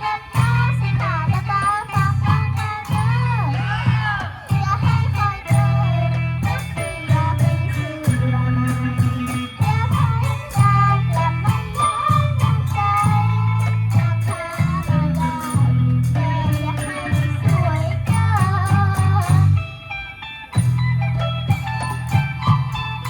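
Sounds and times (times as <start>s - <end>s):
live ensemble music: 0.0s - 23.0s
steady percussion beat: 0.0s - 23.0s.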